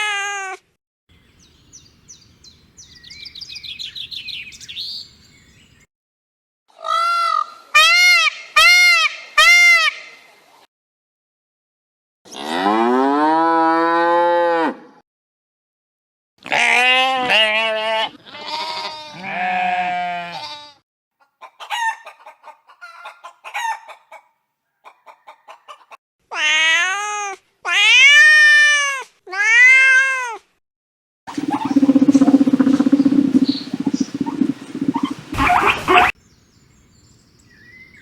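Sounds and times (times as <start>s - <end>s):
rough buzzing animal sound: 31.3s - 36.1s
soft clucks: 31.3s - 36.1s
wavering bleats: 31.3s - 36.1s.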